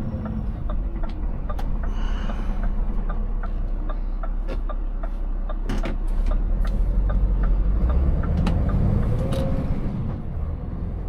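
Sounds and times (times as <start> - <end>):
truck engine running: 0.0 - 9.2
steady ticking: 0.2 - 5.6.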